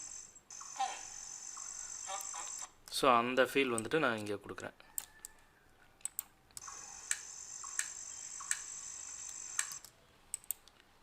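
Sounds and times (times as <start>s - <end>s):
high-pitched insect buzz: 0.0s - 2.7s, 6.6s - 9.8s
sharp clicks: 6.0s - 10.8s.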